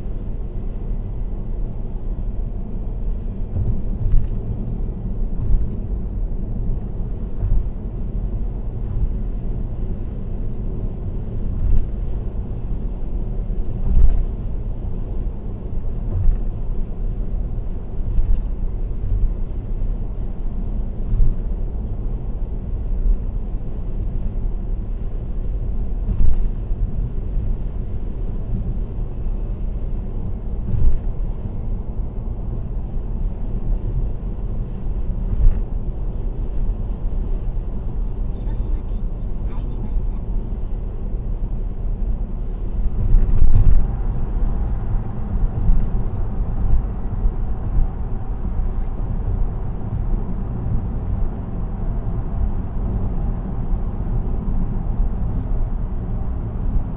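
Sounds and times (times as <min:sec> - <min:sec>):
car road and tyre noise: 0:00.0 - 0:56.9.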